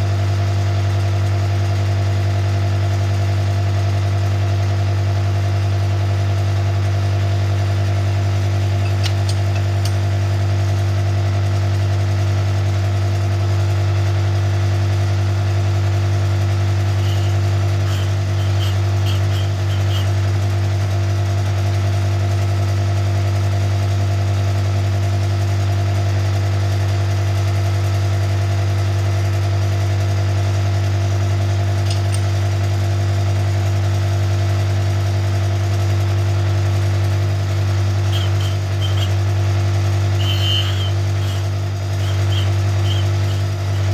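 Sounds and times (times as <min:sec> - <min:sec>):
cutting machine motor hum: 0:16.8 - 0:20.8, 0:36.0 - 0:43.9.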